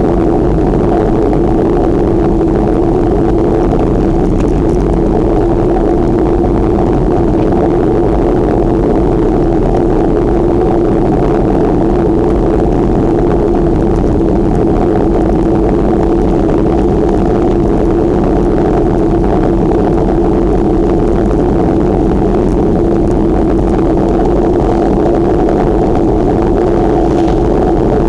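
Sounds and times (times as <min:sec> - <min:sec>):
bicycle rolling noise: 0:00.0 - 0:28.0
wind rushing on microphone: 0:00.0 - 0:28.0.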